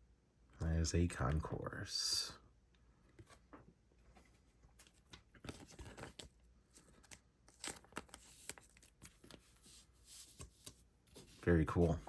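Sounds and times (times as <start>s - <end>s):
trading cards rustling: 4.7s - 12.0s.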